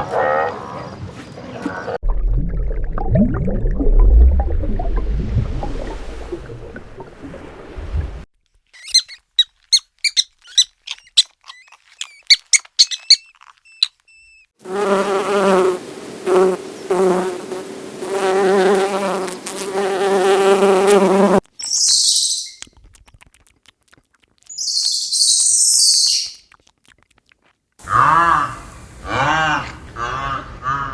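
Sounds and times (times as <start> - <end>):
insect buzzing: 8.8 - 14.0, 14.6 - 22.7
rapid high chirps: 8.8 - 14.5, 21.6 - 22.8, 24.5 - 26.5.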